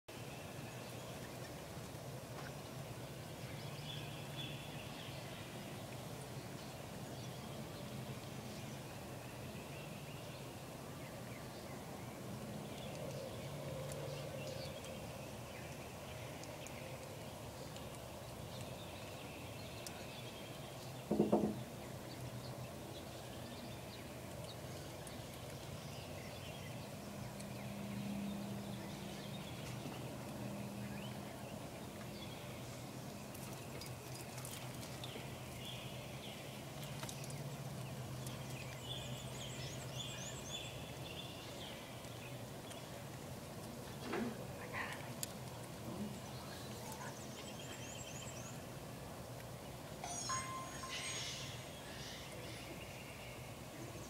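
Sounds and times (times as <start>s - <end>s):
short loud pitched sound: 50.0s - 51.9s
bird chirps: 50.0s - 53.4s.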